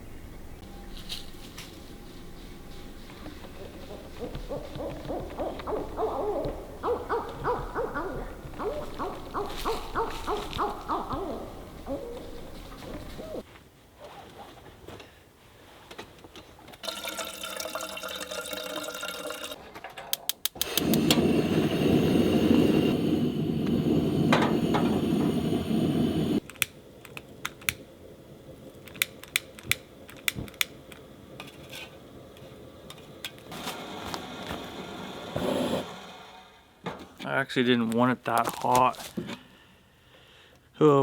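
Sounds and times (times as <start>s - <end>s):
hot water pouring into cup: 16.8s - 19.6s.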